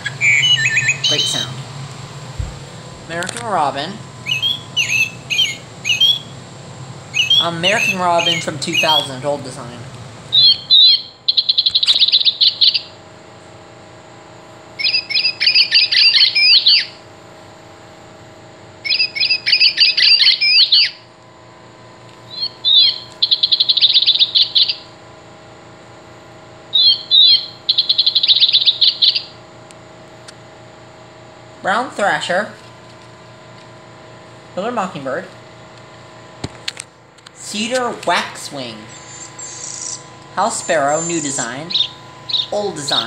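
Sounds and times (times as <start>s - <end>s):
recorded robin calls from toy: 0.0s - 1.6s, 4.2s - 6.3s, 7.1s - 9.2s, 10.3s - 12.9s, 14.8s - 17.0s, 18.8s - 21.0s, 22.3s - 24.8s, 26.7s - 29.3s, 39.1s - 43.0s.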